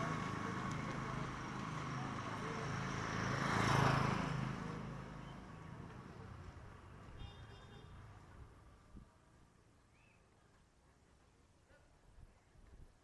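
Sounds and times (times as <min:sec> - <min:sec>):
vehicle passing by: 0:00.0 - 0:07.1.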